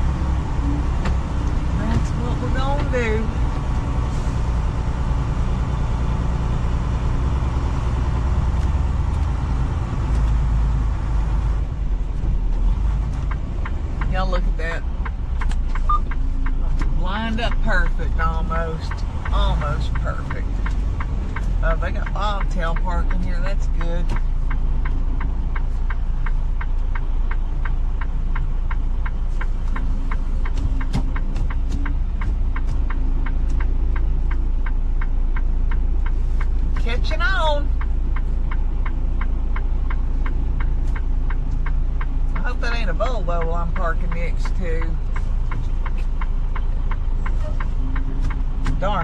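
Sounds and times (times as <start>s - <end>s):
diesel truck engine rumbling: 0.0s - 49.0s
flasher relay ticking: 13.2s - 49.0s.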